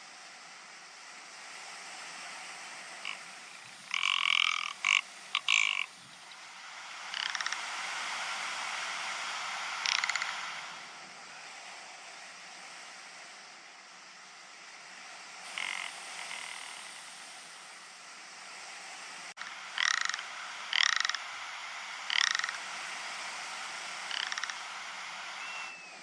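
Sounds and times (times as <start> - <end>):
steady hiss: 0.0 - 26.0
ptarmigan rattling calls: 3.0 - 10.9, 15.5 - 17.1, 19.4 - 25.8.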